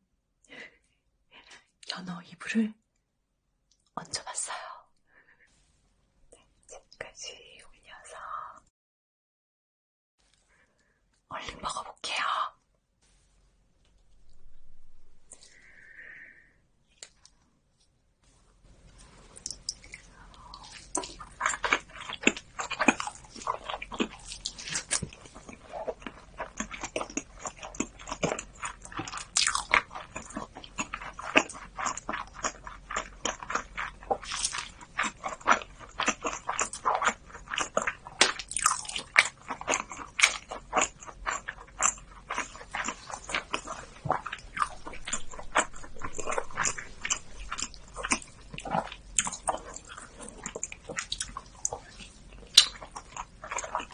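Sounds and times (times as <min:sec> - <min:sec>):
close chewing and biting: 0:19.0 - 0:53.9.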